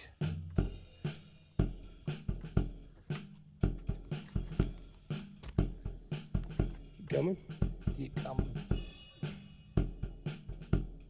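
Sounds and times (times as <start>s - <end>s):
hi-hat and cymbal: 0.0s - 11.0s
music with drum beat and bass: 0.0s - 11.0s.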